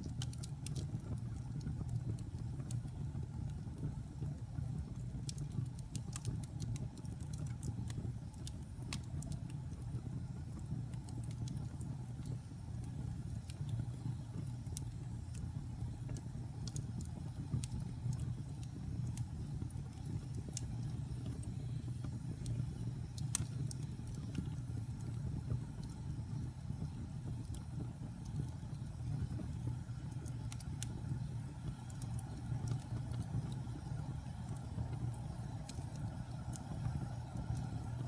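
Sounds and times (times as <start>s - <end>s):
fire crackles and pops: 0.0s - 38.0s
low rumble of flames: 0.0s - 38.0s.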